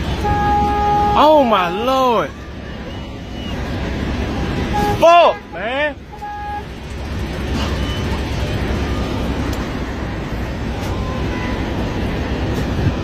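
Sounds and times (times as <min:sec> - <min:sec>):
low vehicle rumble: 0:00.0 - 0:13.0.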